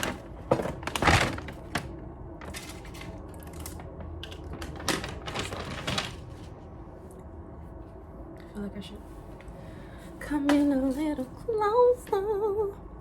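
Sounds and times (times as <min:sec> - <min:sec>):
food packaging rustling: 0:00.0 - 0:06.6.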